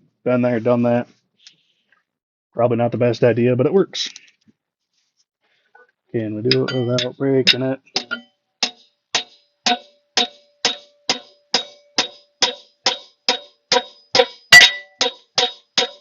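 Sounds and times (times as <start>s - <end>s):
hammer tapping on metal: 6.5s - 16.0s.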